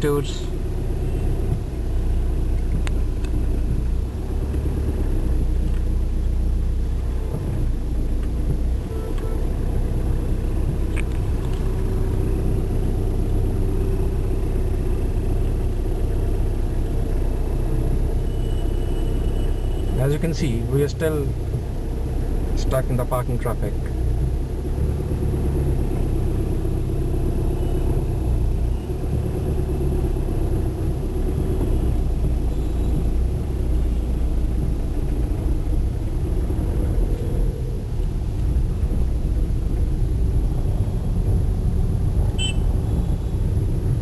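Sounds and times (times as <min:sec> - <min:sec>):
car engine and road rumble: 0:00.0 - 0:44.0
short high beep: 0:42.4 - 0:42.7.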